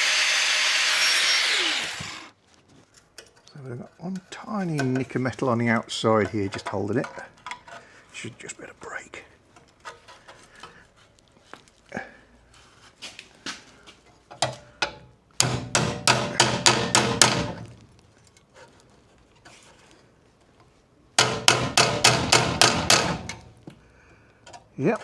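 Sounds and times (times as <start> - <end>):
hammer striking car body steel: 14.8 - 17.6, 21.2 - 23.4.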